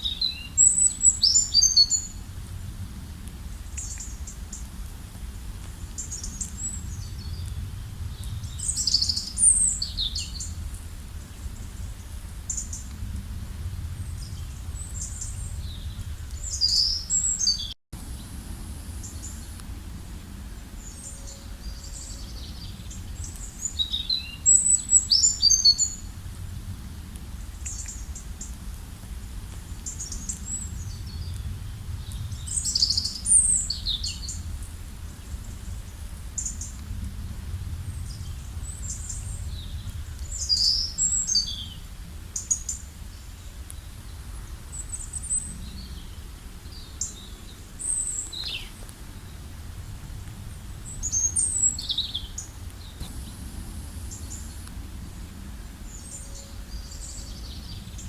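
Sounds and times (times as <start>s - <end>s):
songbirds chirping and trilling: 0.0s - 2.3s, 5.9s - 10.6s, 13.7s - 26.2s, 42.4s - 58.0s
steady low rumble: 2.1s - 17.4s, 18.0s - 23.8s, 25.9s - 42.3s, 42.9s - 58.0s.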